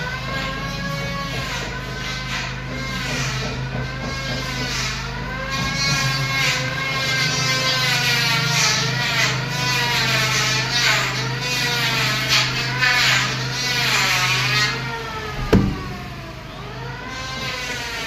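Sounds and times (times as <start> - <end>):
sharp click: 15.4 - 16.2
steady low drone: 15.4 - 16.7.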